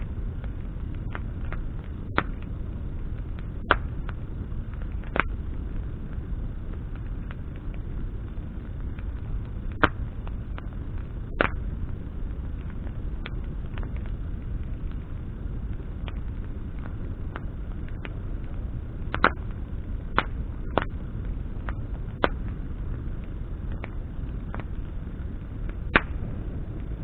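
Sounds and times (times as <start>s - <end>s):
campfire crackling and popping: 0.0s - 27.0s
steady low rumble: 0.0s - 27.0s.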